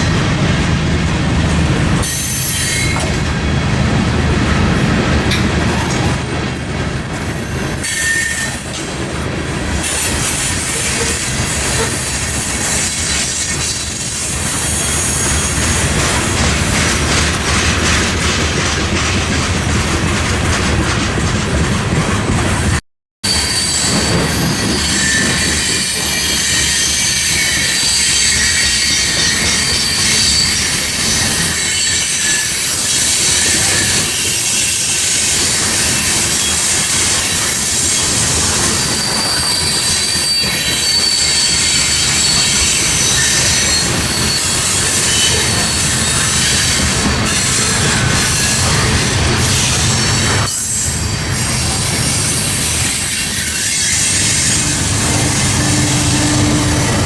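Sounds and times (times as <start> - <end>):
freight train rolling past: 0.0 - 57.0
high-pitched wheel squeal: 2.0 - 3.1, 5.9 - 15.7, 23.3 - 57.0.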